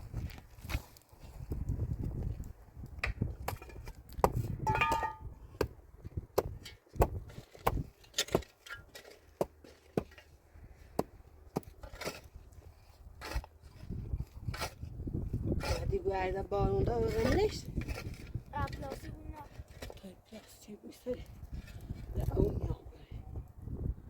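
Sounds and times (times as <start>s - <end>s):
sharp knocks and clinks: 4.7s - 5.3s.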